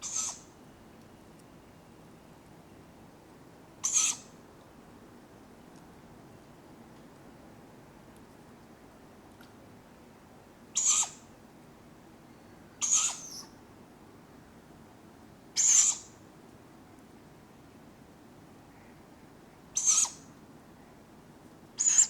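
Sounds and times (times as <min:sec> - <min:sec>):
owlets screeching food-begging calls: 0:00.0 - 0:00.5, 0:03.8 - 0:04.3, 0:10.8 - 0:11.2, 0:12.8 - 0:13.5, 0:15.6 - 0:16.1, 0:19.8 - 0:20.2
faint woodland background hiss: 0:00.0 - 0:22.0.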